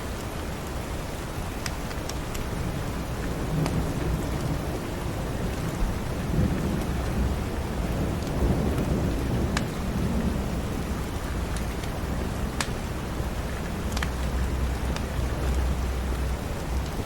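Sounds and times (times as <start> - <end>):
heavy rain: 0.0 - 17.0
rolling thunder: 2.6 - 16.2.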